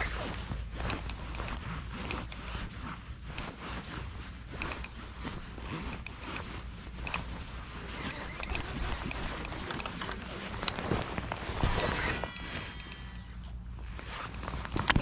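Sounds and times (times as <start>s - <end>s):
clothing rustle: 0.0s - 15.0s
footsteps crunching: 0.0s - 15.0s
steady low rumble: 0.0s - 15.0s.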